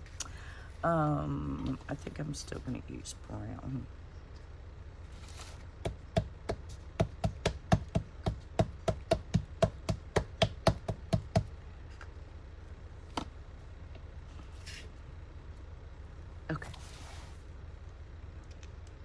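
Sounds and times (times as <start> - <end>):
rubber stamp tapping ink pad: 5.9 - 11.5.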